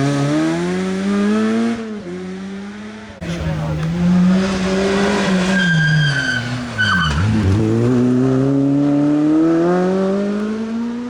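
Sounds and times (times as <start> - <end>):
car engine revving: 0.0 - 11.0
tyre squeals: 4.4 - 7.7.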